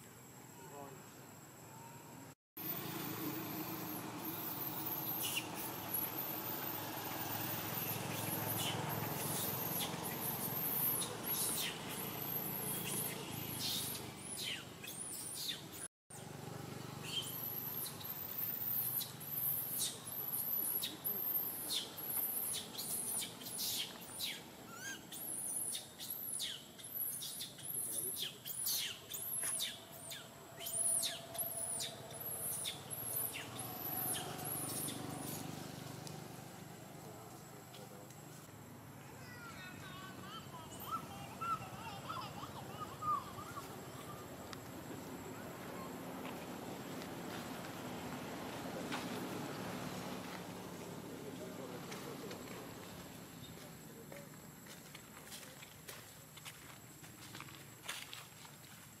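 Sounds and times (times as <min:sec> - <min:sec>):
birds chirping high-pitched: 0:02.6 - 0:16.3, 0:16.9 - 0:35.6, 0:39.8 - 0:44.4.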